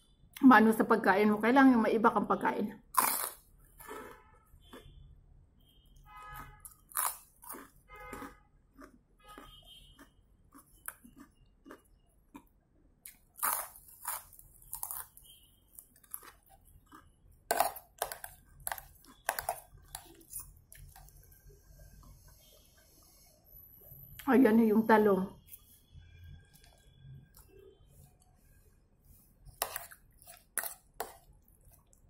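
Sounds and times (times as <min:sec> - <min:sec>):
chewing crunchy snack crackers: 0:02.9 - 0:05.0, 0:06.3 - 0:21.4, 0:29.5 - 0:32.0.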